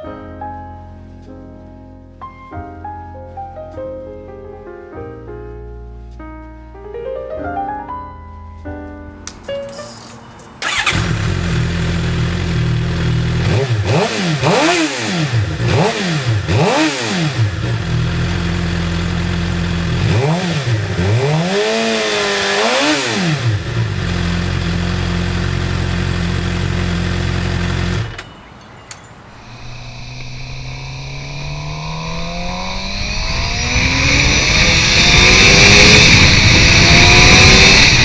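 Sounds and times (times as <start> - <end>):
motorcycle engine idling and revving: 10.6 - 38.0.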